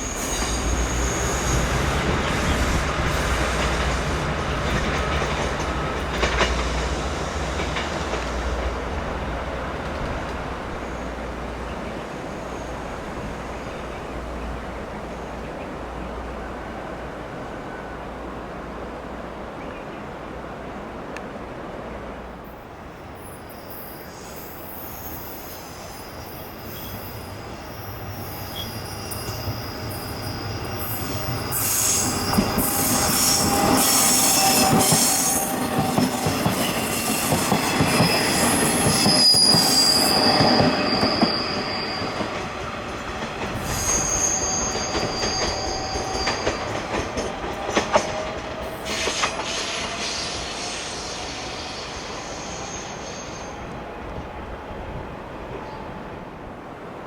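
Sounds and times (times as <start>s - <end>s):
train wheels squealing: 0.0s - 8.8s, 23.0s - 53.8s
train passing: 0.0s - 57.0s
wheels clicking on rails: 1.4s - 9.0s, 42.2s - 50.0s.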